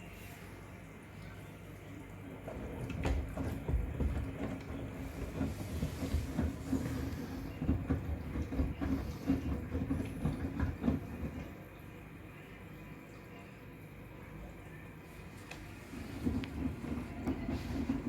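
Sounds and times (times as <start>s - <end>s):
washing machine motor hum: 0.0s - 18.0s
washing machine thuds and sloshes: 2.3s - 11.7s, 15.3s - 18.0s.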